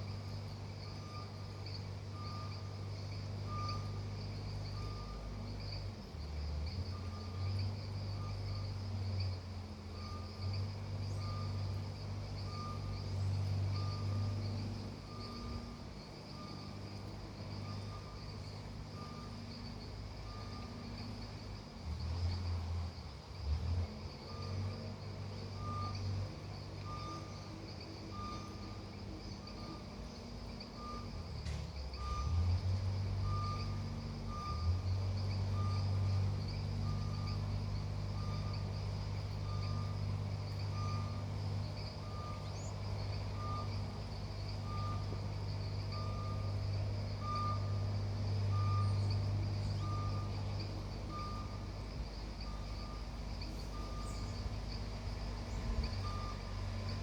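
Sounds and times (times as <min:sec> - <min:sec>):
reversing alarm beeping: 0:00.8 - 0:05.4, 0:09.9 - 0:21.4, 0:25.5 - 0:57.0
low engine running: 0:25.0 - 0:57.0.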